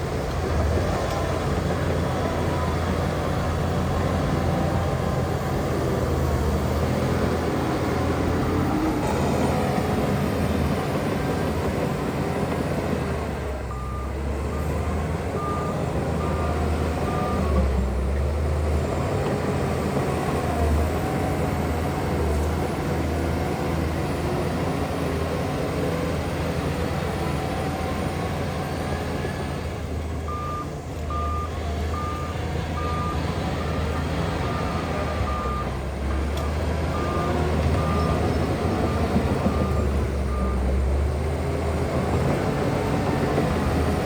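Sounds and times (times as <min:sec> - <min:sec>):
diesel machinery engine rumble: 0:00.0 - 0:44.0
reversing alarm beeps: 0:13.7 - 0:14.7, 0:15.4 - 0:17.6, 0:30.3 - 0:35.8, 0:36.9 - 0:40.7.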